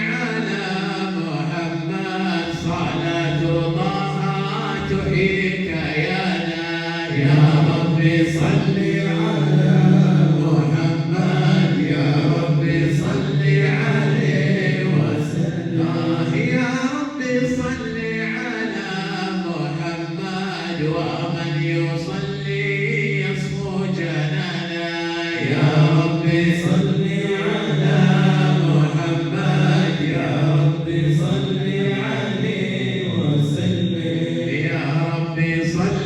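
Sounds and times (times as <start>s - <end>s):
group of voices chanting: 7.1s - 16.6s, 25.4s - 35.9s.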